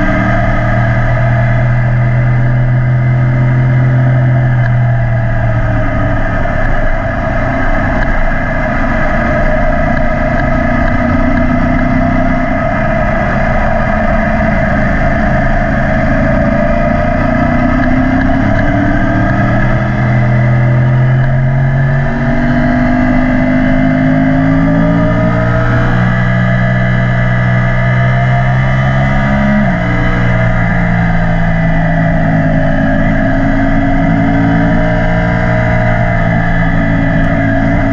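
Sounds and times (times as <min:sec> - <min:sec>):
low wind rumble: 0:00.0 - 0:37.9
motorcycle engine accelerating: 0:00.0 - 0:37.9.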